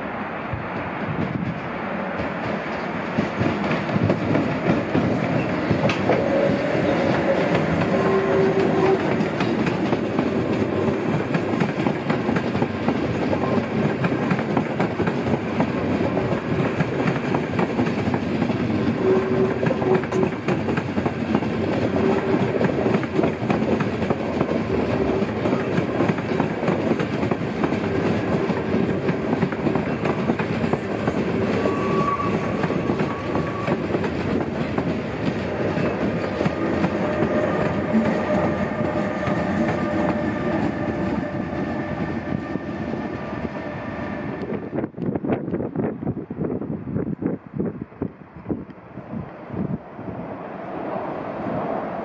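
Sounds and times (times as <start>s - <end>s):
train wheels rumbling on rail: 0.0s - 52.0s
clickety-clack over rail joints: 0.5s - 43.3s.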